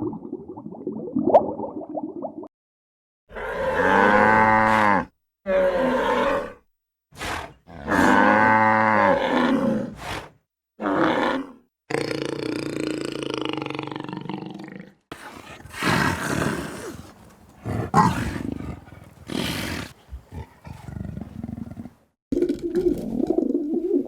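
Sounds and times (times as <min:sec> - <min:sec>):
large animal roaring: 0:07.2 - 0:21.9.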